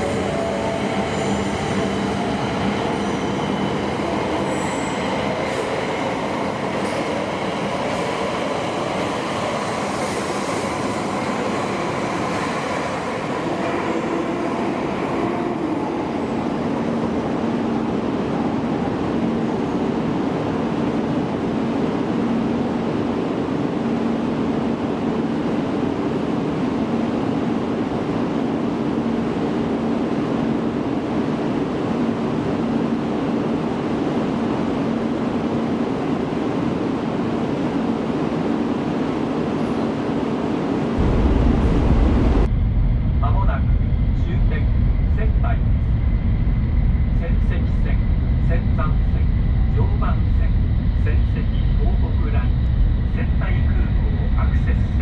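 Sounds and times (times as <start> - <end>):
train rolling rumble: 0.0 - 21.8, 33.1 - 55.0.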